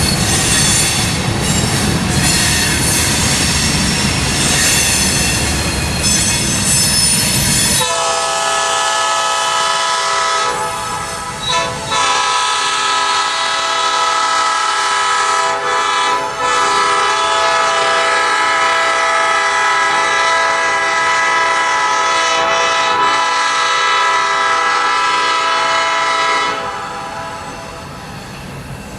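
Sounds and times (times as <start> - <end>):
train rolling: 0.0 - 28.9
locomotive air horn blast: 7.8 - 27.4.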